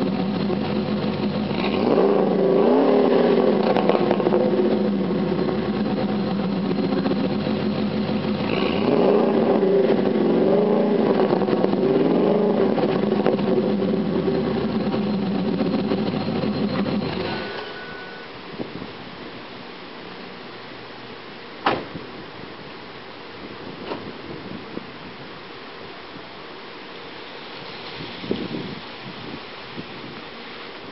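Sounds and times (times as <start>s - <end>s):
truck engine idling and revving: 0.0s - 18.2s.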